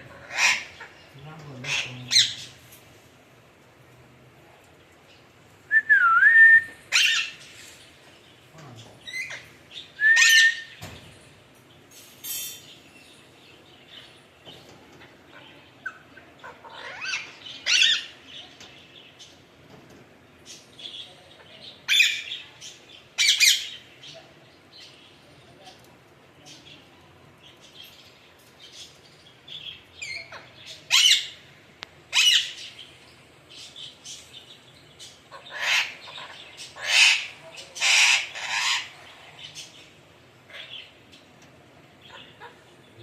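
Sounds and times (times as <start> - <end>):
parakeet squawking: 35.3 - 39.0.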